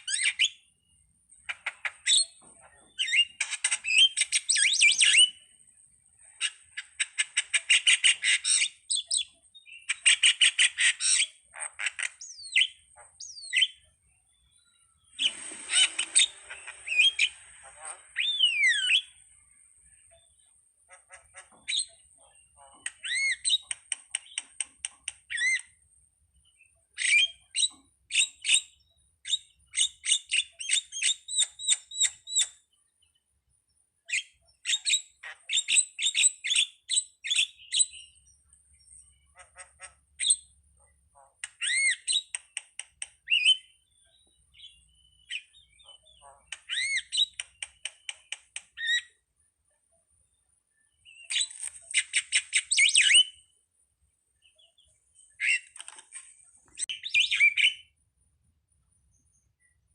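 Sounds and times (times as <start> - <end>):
starling chattering and whistling: 1.4 - 5.6, 15.0 - 20.4, 21.1 - 25.7, 41.4 - 43.8, 44.6 - 49.2, 51.0 - 53.4, 55.2 - 57.9.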